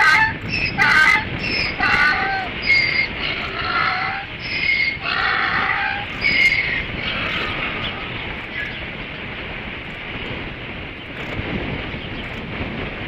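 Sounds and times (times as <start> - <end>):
osprey whistled calls: 0.0 - 8.9
wind buffeting microphone: 0.0 - 13.0.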